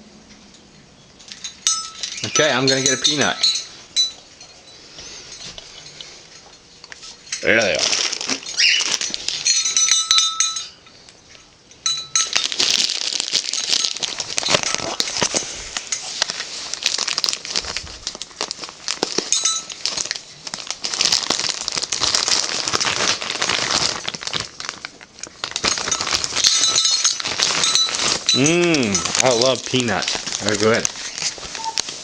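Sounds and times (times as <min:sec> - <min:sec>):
peanut shells rattling together: 0:01.2 - 0:04.3, 0:11.8 - 0:16.1, 0:16.7 - 0:31.8.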